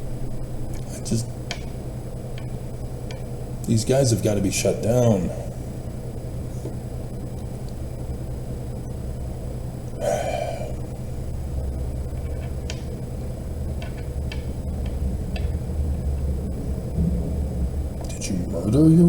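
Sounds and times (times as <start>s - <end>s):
steady low hum: 0.0s - 19.0s
person gasping: 10.0s - 10.8s.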